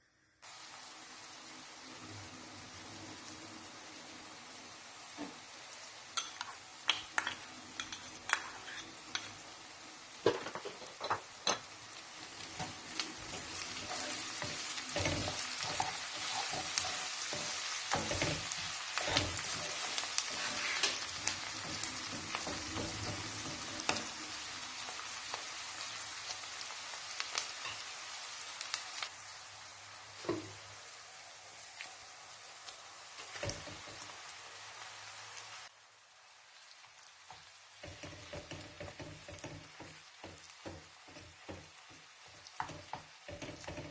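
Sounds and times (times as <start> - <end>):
food sizzling in a frying pan: 0.4 - 43.9
spoon knocking against pan: 37.8 - 41.8, 42.6 - 43.9.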